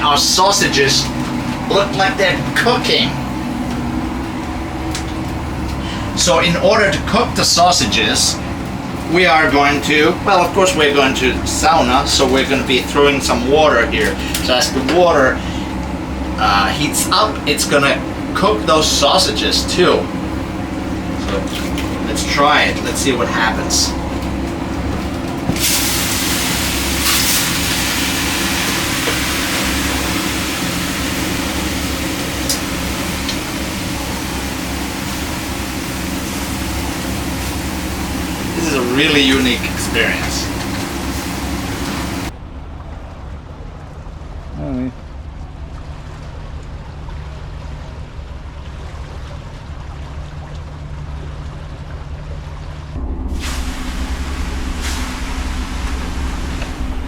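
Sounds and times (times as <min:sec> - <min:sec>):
low engine drone: 0:00.0 - 0:57.0
water rushing under hull: 0:00.0 - 0:57.0
water hissing on hot stones: 0:25.6 - 0:42.3.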